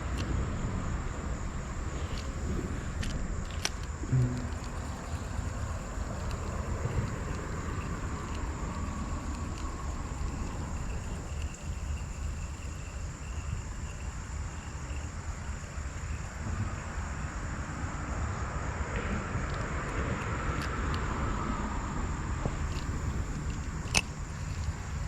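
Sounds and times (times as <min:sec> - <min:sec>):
steady low rumble: 0:00.0 - 0:17.4
soft hiss: 0:00.0 - 0:17.8
high insect drone: 0:00.0 - 0:25.0
faint ticks: 0:01.4 - 0:16.8, 0:19.5 - 0:25.0.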